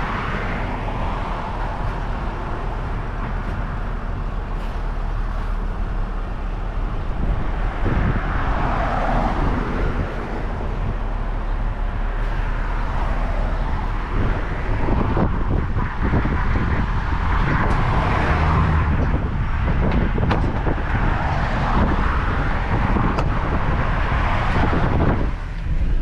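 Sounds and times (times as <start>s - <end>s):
road noise: 0.0s - 26.0s
truck engine rumble: 0.0s - 26.0s.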